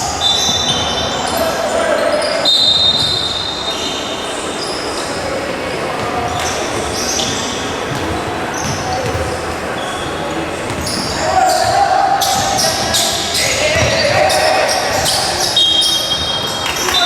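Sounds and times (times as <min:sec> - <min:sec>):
crowd hubbub: 0:00.0 - 0:17.0
basketball bouncing on court: 0:06.0 - 0:09.5, 0:10.6 - 0:14.3
high-pitched shoe squeaks: 0:10.7 - 0:16.6.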